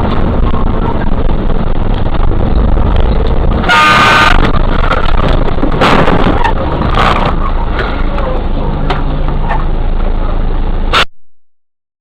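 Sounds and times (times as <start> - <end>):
traffic and engine rumble: 0.0 - 11.1
vehicle horn blast: 3.6 - 4.5.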